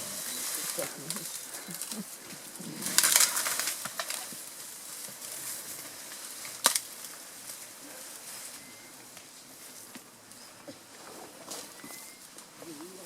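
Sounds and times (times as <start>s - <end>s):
leafy vegetation crackling and rustling: 0.0s - 13.0s
stem snapping: 0.4s - 4.4s, 6.4s - 7.1s.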